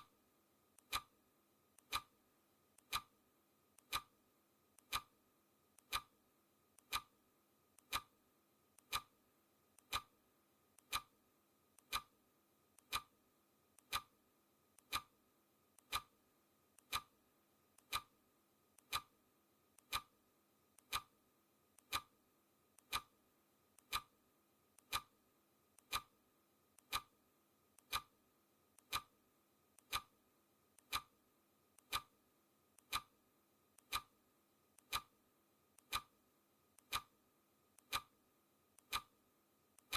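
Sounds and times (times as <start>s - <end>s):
clock ticking: 0.8s - 1.2s, 1.8s - 2.2s, 2.8s - 3.1s, 3.8s - 4.1s, 4.8s - 5.2s, 5.8s - 6.2s, 6.8s - 7.1s, 7.8s - 8.2s, 8.8s - 9.2s, 9.8s - 10.2s, 10.8s - 11.2s, 11.8s - 12.2s, 12.8s - 13.1s, 13.8s - 14.2s, 14.8s - 15.1s, 15.8s - 16.2s, 16.8s - 17.2s, 17.8s - 18.2s, 18.8s - 19.2s, 19.8s - 20.2s, 20.8s - 21.2s, 21.8s - 22.2s, 22.8s - 23.2s, 23.8s - 24.2s, 24.8s - 25.2s, 25.8s - 26.2s, 26.8s - 27.2s, 27.8s - 28.2s, 28.8s - 29.2s, 29.8s - 30.2s, 30.8s - 31.2s, 31.8s - 32.2s, 32.8s - 33.2s, 33.8s - 34.2s, 34.8s - 35.2s, 35.8s - 36.2s, 36.8s - 37.2s, 37.8s - 38.2s, 38.8s - 39.2s.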